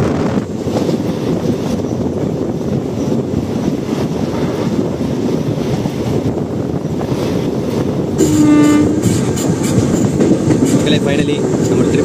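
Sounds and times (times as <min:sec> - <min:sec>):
train rumbling: 0:00.0 - 0:12.0
train horn blast: 0:08.2 - 0:09.5.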